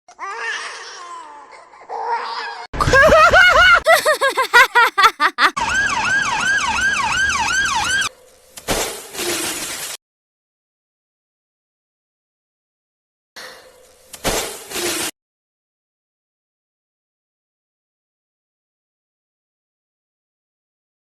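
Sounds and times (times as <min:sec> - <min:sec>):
siren yelping: 0:05.6 - 0:08.1.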